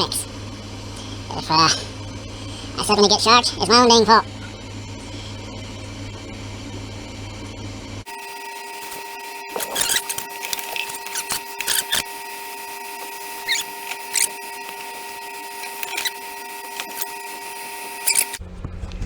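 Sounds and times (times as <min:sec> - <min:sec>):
hot-air rework station whine: 0:00.0 - 0:19.0
low hum: 0:00.0 - 0:19.0
short clicks and scrapes: 0:08.8 - 0:18.4.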